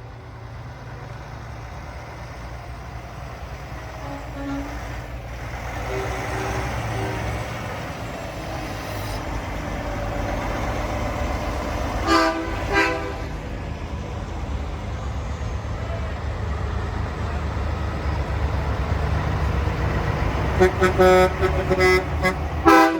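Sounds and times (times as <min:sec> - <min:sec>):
truck engines rumbling: 0:00.0 - 0:22.9
truck horn blasts: 0:03.9 - 0:05.1, 0:05.8 - 0:07.8, 0:12.0 - 0:13.4, 0:20.5 - 0:22.9.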